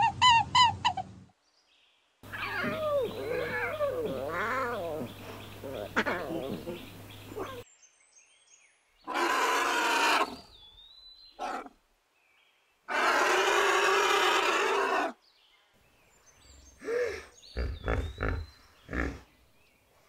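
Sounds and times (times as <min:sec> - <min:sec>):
large animal calls: 0:02.2 - 0:07.6, 0:09.1 - 0:10.5, 0:12.9 - 0:15.2, 0:16.8 - 0:19.3
deep grunts: 0:16.8 - 0:19.3.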